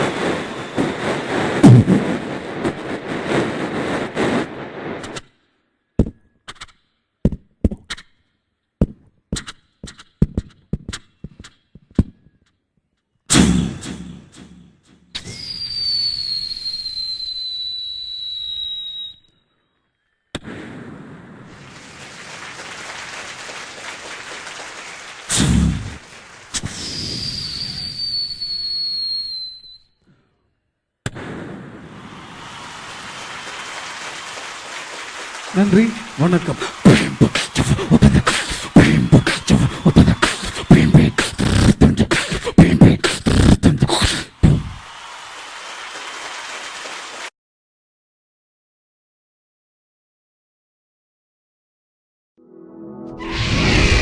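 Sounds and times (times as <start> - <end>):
mimicked rocket whistle: 15.1 - 19.5, 26.5 - 30.0, 36.2 - 42.4
beatboxing: 35.6 - 44.8.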